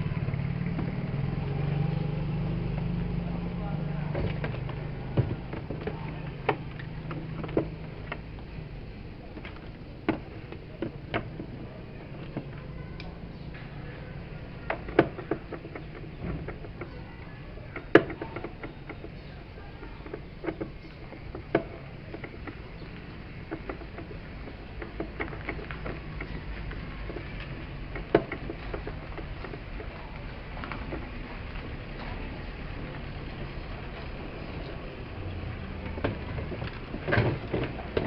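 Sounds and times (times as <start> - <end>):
tools clicking and knocking: 9.3 - 35.1.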